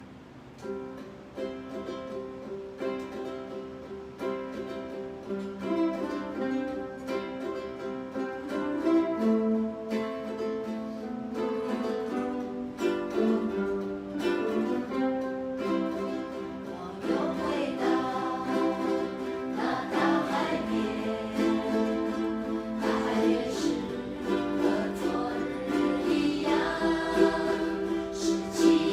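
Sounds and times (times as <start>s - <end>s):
ukulele ensemble playing: 0.0s - 28.9s
people singing: 16.6s - 28.9s.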